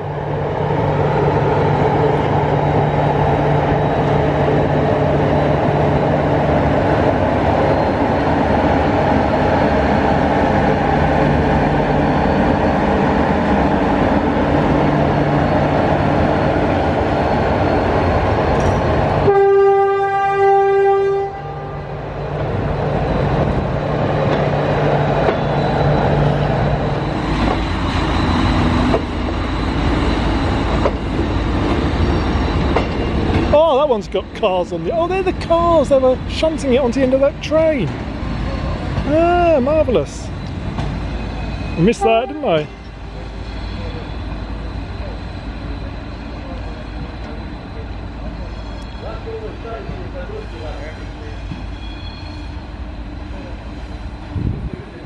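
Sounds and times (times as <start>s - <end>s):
locomotive horn blast: 19.2s - 21.9s, 41.8s - 42.8s.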